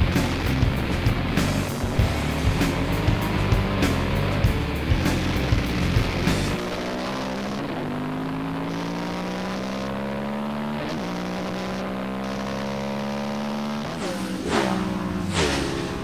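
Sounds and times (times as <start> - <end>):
racing motorcycle engine accelerating: 0.0 - 16.0.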